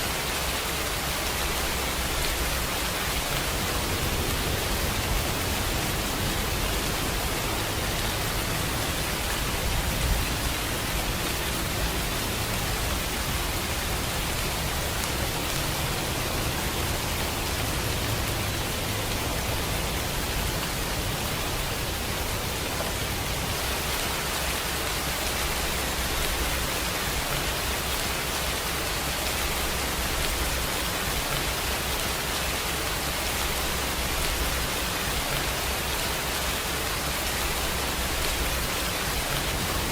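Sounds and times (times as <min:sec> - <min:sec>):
rain hissing: 0:00.0 - 0:39.9.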